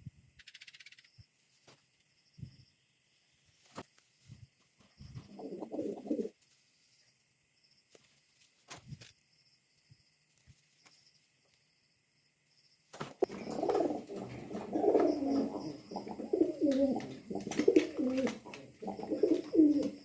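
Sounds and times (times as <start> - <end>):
pigeon cooing: 5.0 - 6.4, 13.2 - 20.0.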